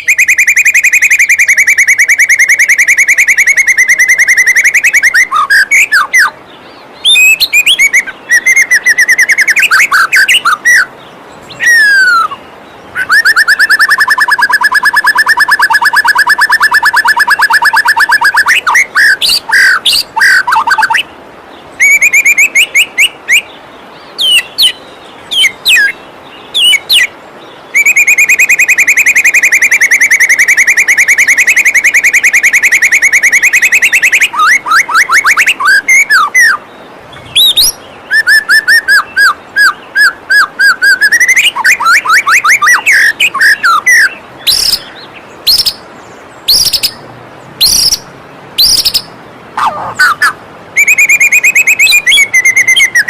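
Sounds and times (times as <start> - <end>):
bird song trills and whistles: 0.0 - 53.0
waterfall rushing: 34.3 - 50.9.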